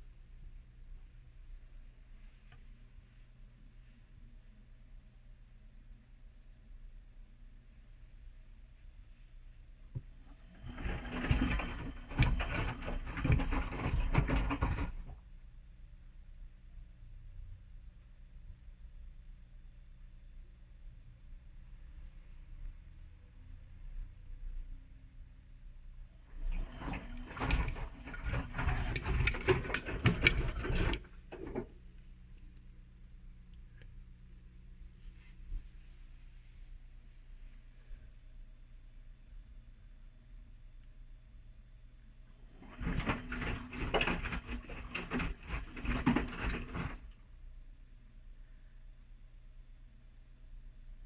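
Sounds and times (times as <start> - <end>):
laundry knocking and clattering: 10.0 - 15.2, 26.3 - 31.8, 42.5 - 47.2
washing machine drum turning: 10.3 - 15.2, 26.3 - 31.8, 42.6 - 47.2.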